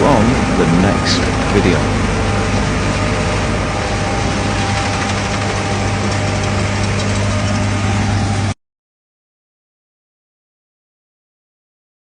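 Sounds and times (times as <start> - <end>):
combine harvester running: 0.0 - 8.6.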